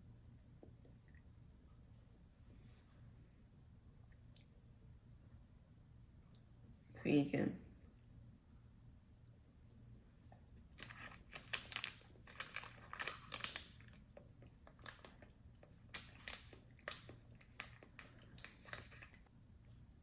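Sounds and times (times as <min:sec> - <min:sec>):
low steady hum: 0:00.0 - 0:20.0
snack packaging crinkling: 0:10.7 - 0:19.3.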